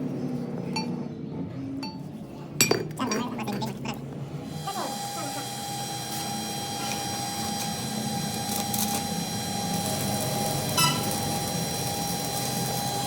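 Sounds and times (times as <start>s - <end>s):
machine humming and whining: 3.8s - 13.0s.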